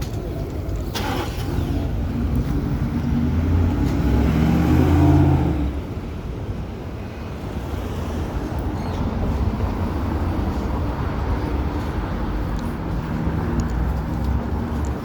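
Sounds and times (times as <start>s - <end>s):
vehicle engine passing by: 0.9s - 5.9s.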